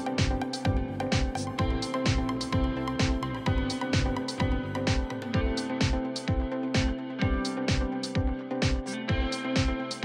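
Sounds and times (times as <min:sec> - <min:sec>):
kick drum beat: 0:00.0 - 0:10.0.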